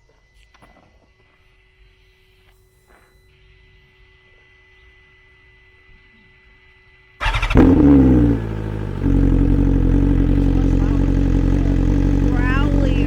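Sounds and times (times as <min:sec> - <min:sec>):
motorcycle engine starting and revving: 0:07.2 - 0:13.0.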